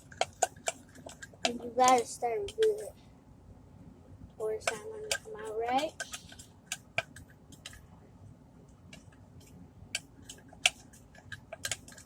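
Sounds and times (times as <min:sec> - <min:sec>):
utensil clicking against cup: 0:00.0 - 0:02.8, 0:04.6 - 0:07.8, 0:10.0 - 0:12.0
utensil stirring slime in a cup: 0:00.0 - 0:02.9, 0:04.4 - 0:07.9, 0:08.9 - 0:12.0.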